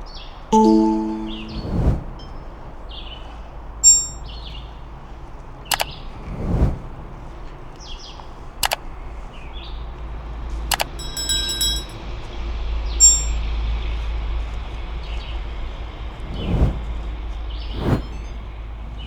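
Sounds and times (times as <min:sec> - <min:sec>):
ringing metallic clink: 0:03.8 - 0:04.2, 0:10.7 - 0:12.0, 0:13.0 - 0:13.4
sharp clicks: 0:10.7 - 0:11.0.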